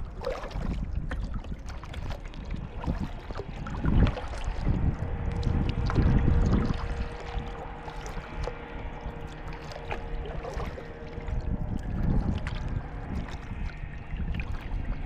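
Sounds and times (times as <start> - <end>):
faint steady hum: 0.0 - 15.0
water sloshing around a kayak: 0.0 - 15.0
small knocks and drips: 0.2 - 15.0.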